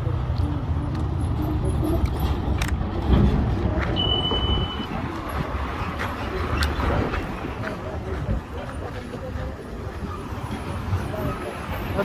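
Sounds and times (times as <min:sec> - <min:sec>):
large engine rumbling: 0:00.0 - 0:12.0
short high steady tone: 0:04.0 - 0:04.9.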